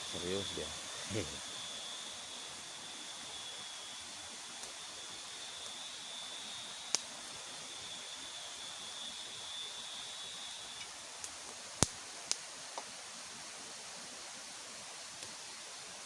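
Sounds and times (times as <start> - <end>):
thin high steady tone: 0.0 - 10.9.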